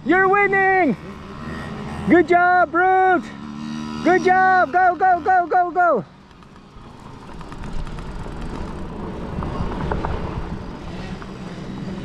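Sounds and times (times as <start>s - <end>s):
dirt bike engines racing: 0.0s - 12.0s.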